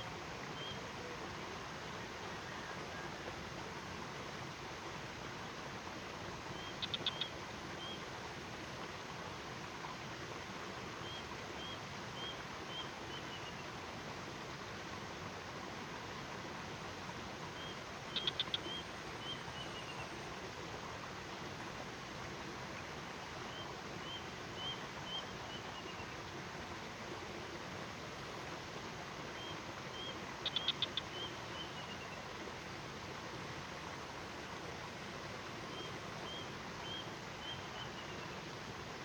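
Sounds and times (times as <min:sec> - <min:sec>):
bird singing: 0:29.4 - 0:32.0.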